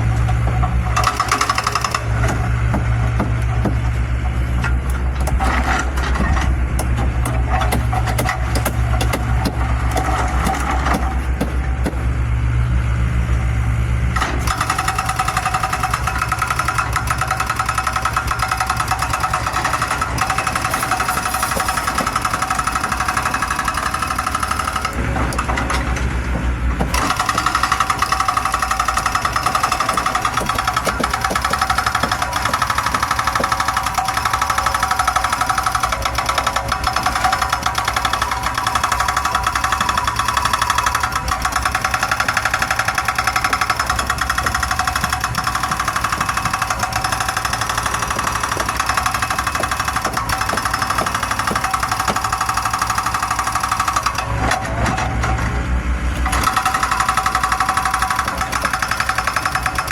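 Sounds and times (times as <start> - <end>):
diesel engine pulsing: 0.0 - 59.9.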